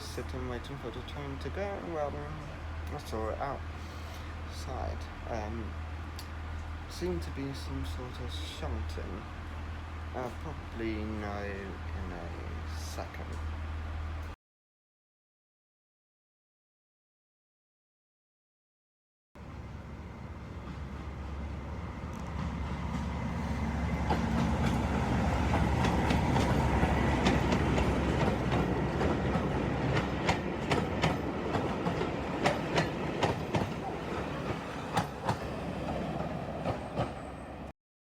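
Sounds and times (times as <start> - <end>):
train running rumble: 0.0 - 14.4, 19.4 - 37.7
wheels clicking over rail joints: 24.0 - 37.3.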